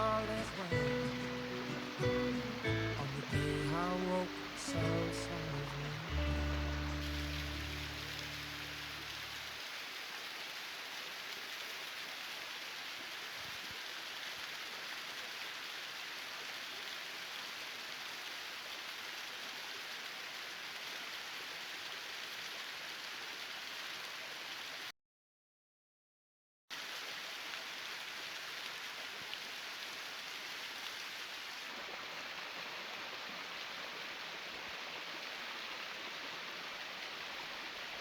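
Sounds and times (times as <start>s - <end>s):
low music notes: 0.0s - 9.1s
water hissing: 0.0s - 9.6s.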